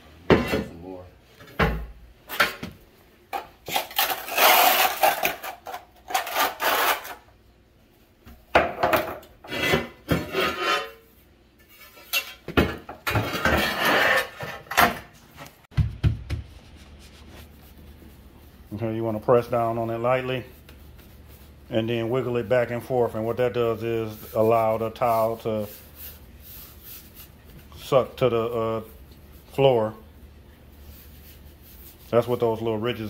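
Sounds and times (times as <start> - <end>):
trowel scraping mortar on tile: 3.7 - 7.2, 9.4 - 11.0, 13.2 - 14.6.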